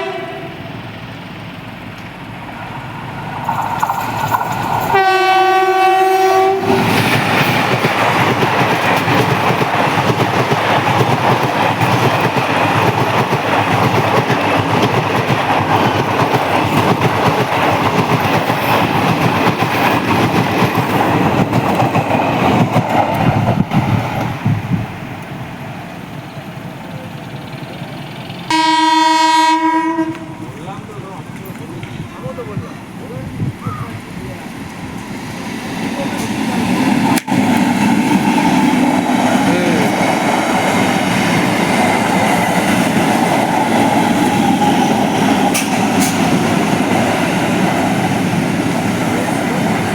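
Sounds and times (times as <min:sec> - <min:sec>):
train horn: 0:00.0 - 0:00.7, 0:04.9 - 0:06.9, 0:28.5 - 0:30.6
train wheels rumbling on rails: 0:00.0 - 0:49.9.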